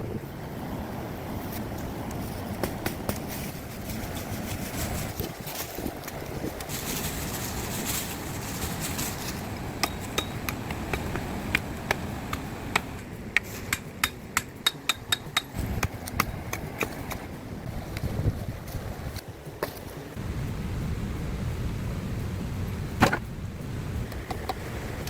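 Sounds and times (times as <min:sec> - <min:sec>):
wind rushing: 0:00.0 - 0:25.0
hand tool knocking: 0:09.8 - 0:17.2.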